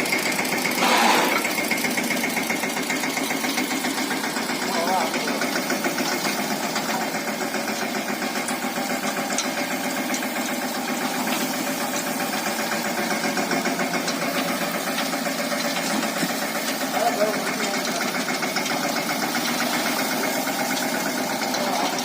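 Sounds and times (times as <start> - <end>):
diesel tractor engine running: 0.0 - 22.0.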